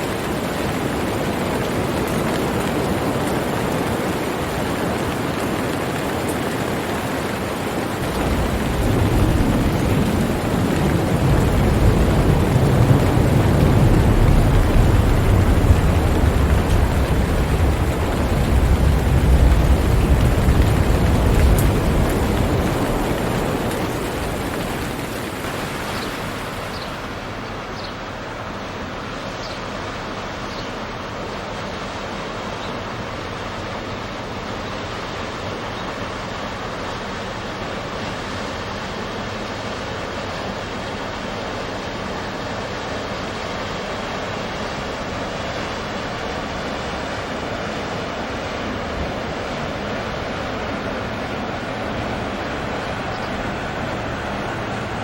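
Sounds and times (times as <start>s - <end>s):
heavy rain hissing: 0.0s - 55.0s
low thunder rumble: 7.9s - 27.3s.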